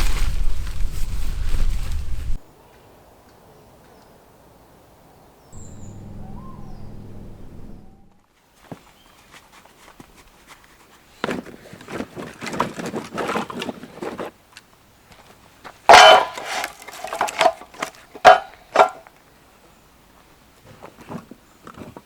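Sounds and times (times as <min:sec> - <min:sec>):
handling rustling: 0:00.0 - 0:02.4, 0:15.9 - 0:19.0.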